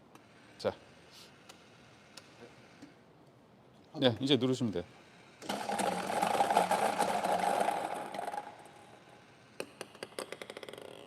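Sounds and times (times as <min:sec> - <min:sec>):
lottery balls rattling in machine: 0:05.4 - 0:09.0.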